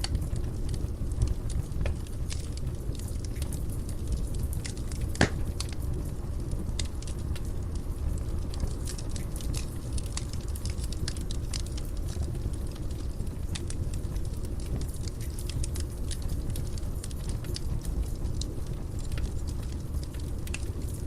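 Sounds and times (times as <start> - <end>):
wood fire crackling: 0.0 - 21.0
loud fire pop: 5.1 - 5.5.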